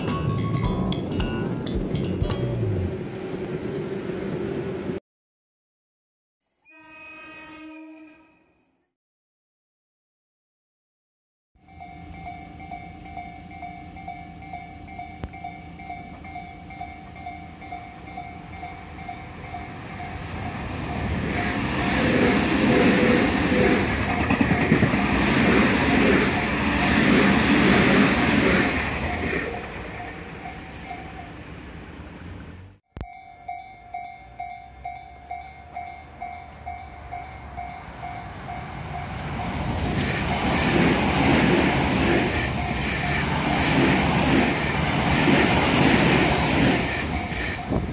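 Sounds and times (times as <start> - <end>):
two-tone crossing warning bell: 0.0 - 2.8, 11.6 - 32.0, 32.9 - 41.2, 41.8 - 43.5, 44.2 - 47.9
electric train rumble: 0.0 - 5.0, 11.6 - 32.8, 33.4 - 47.9
pulsed ringing tone: 28.7 - 31.4.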